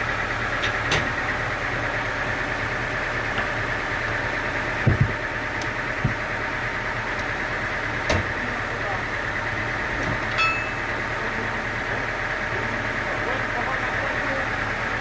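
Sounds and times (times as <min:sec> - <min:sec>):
sawmill engine idling: 0:00.0 - 0:15.0
dull thumps: 0:04.8 - 0:05.2.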